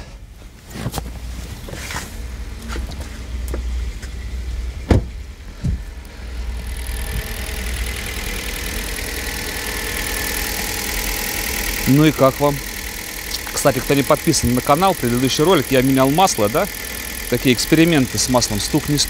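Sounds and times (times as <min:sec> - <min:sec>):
car engine idling: 0:00.1 - 0:19.0.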